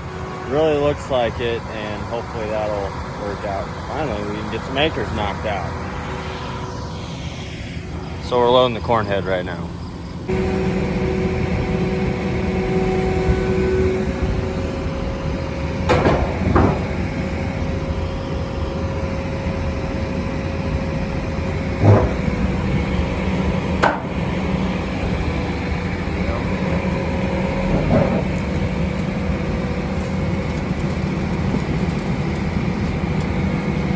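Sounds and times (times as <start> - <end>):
diesel engine running: 0.0 - 33.9
metal clunks: 10.3 - 17.8, 21.8 - 22.8, 23.8 - 24.5, 26.8 - 29.1.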